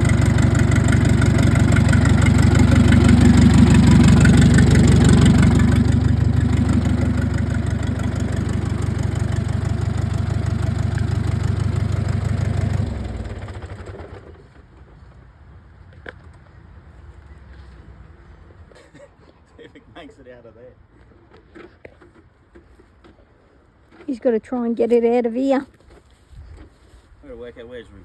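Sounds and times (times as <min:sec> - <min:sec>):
tractor diesel engine running: 0:00.0 - 0:14.7.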